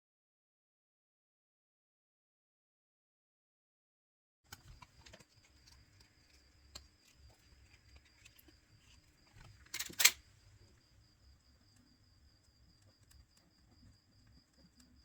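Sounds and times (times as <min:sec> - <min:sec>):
small tools clicking: 0:04.5 - 0:10.3.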